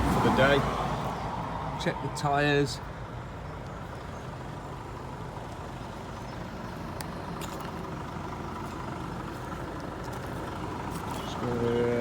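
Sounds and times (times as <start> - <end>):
diesel lorry engine idling: 0.0 - 12.0.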